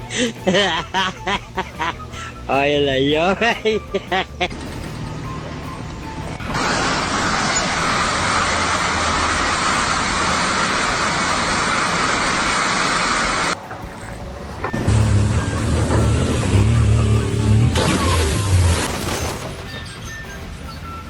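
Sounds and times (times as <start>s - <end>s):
steady rushing noise: 6.4s - 13.6s.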